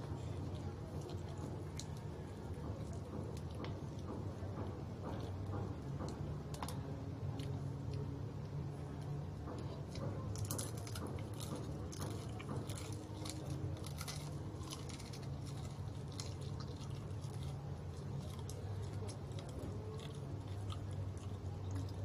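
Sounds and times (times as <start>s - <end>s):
person chewing crispy chicken: 9.7s - 22.0s.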